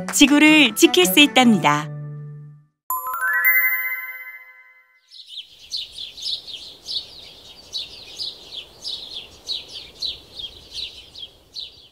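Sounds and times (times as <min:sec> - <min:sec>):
birds chirping: 0:05.1 - 0:11.9.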